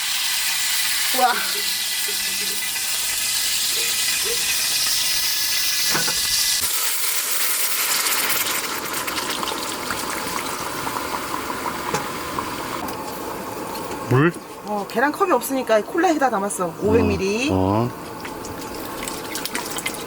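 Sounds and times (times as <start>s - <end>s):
meat sizzling in hot oil: 0.0s - 14.0s.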